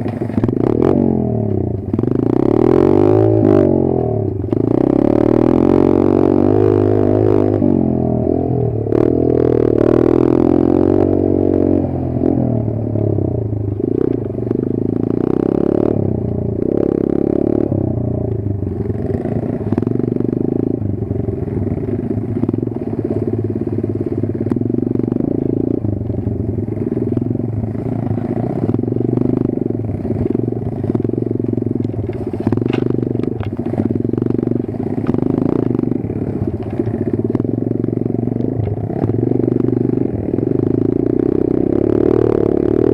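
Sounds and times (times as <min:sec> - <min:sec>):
motorbike engine revving: 0:00.0 - 0:42.9
knocks and clatter: 0:30.0 - 0:37.5.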